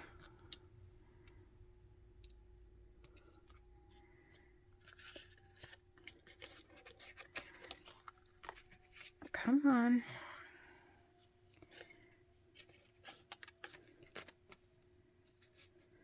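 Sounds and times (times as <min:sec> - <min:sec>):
faint steady hum: 0:00.0 - 0:16.0
needle and thread rustling paper: 0:03.0 - 0:09.4, 0:11.2 - 0:16.0.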